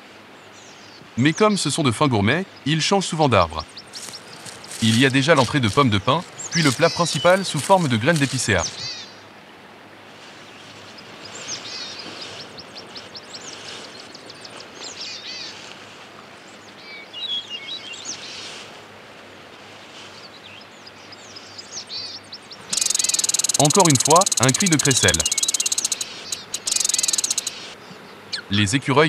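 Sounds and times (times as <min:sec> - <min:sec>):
forest hiss: 0:00.0 - 0:09.4, 0:10.0 - 0:29.0
small birds chirping: 0:00.4 - 0:09.3, 0:10.2 - 0:18.6, 0:20.1 - 0:29.0
squirrel rattling call: 0:03.5 - 0:09.1, 0:11.3 - 0:13.6, 0:22.0 - 0:27.8.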